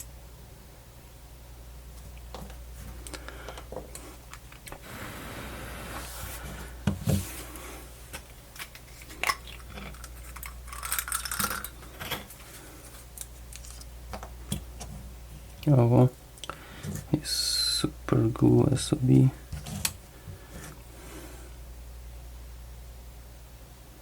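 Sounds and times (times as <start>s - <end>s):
small parts and tools clicking: 8.6s - 12.3s.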